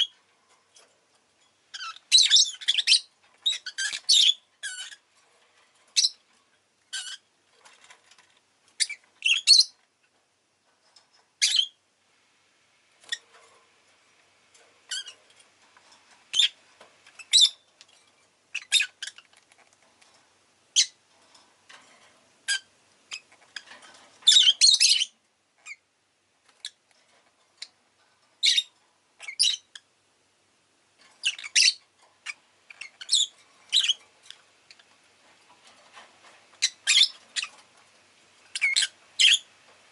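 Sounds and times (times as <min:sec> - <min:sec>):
lovebird chirping and squawking: 0:01.7 - 0:05.1, 0:05.9 - 0:06.2, 0:06.9 - 0:07.3, 0:08.8 - 0:09.8, 0:11.4 - 0:11.8, 0:13.0 - 0:13.3, 0:14.9 - 0:15.2, 0:16.3 - 0:17.7, 0:18.5 - 0:19.5, 0:20.8 - 0:21.0, 0:22.4 - 0:25.8, 0:28.4 - 0:29.9, 0:31.2 - 0:34.0, 0:36.6 - 0:37.6, 0:38.5 - 0:39.5.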